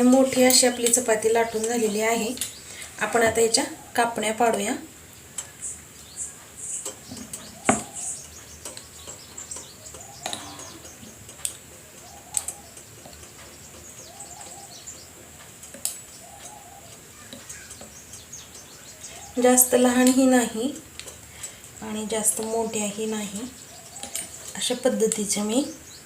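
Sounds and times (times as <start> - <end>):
birds chirping: 0.0 - 26.0
faint cooing calls: 6.7 - 8.5, 9.6 - 13.0, 13.9 - 15.6, 16.2 - 17.9.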